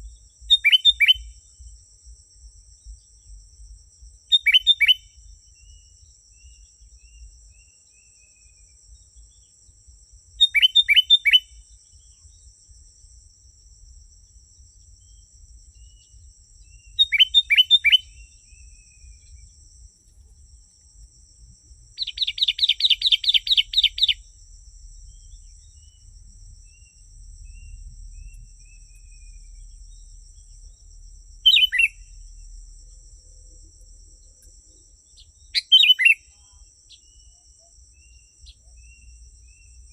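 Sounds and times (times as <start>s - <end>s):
bird whistled calls: 0.5s - 1.3s, 4.4s - 5.0s, 10.4s - 11.5s, 16.8s - 18.8s, 22.0s - 24.2s, 31.4s - 32.1s, 35.6s - 36.4s.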